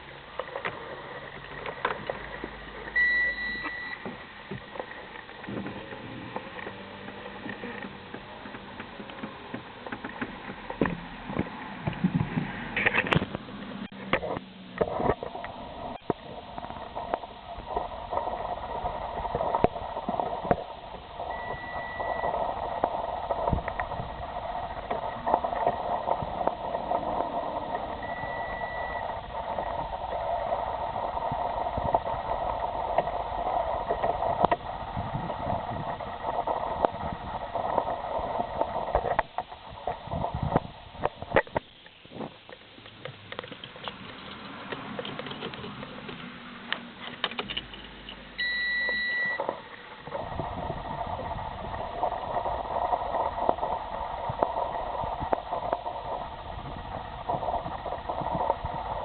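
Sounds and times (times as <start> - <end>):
mechanical engine drone: 0.0 - 59.0
short electronic beep: 3.0 - 4.0, 21.3 - 22.4, 28.0 - 29.2, 48.4 - 49.5.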